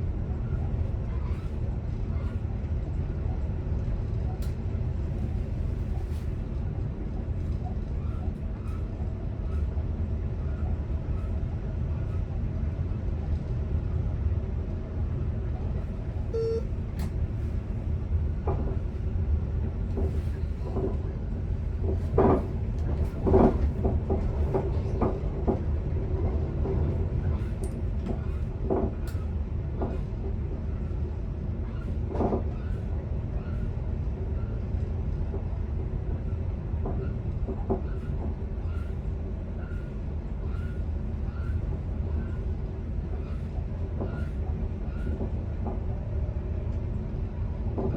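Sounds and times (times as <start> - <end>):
electric train rumbling on track: 0.0 - 47.9
short beep: 16.3 - 16.7.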